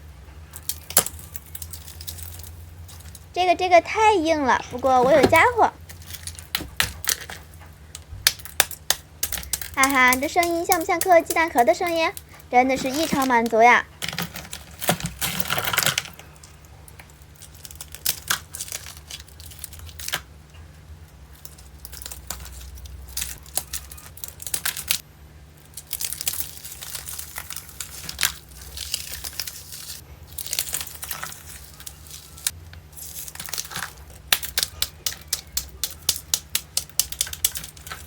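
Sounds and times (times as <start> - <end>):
water beads crunching: 0.6 - 3.3, 8.3 - 16.5, 25.7 - 38.0.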